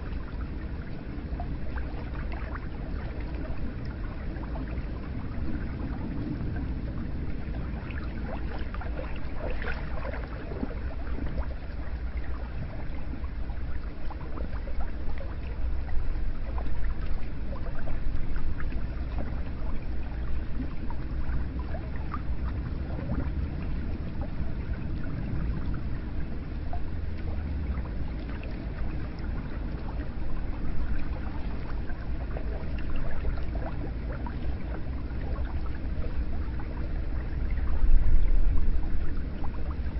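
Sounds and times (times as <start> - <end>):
small splashes and drips: 0.0 - 25.9
water running and gurgling: 0.0 - 39.9.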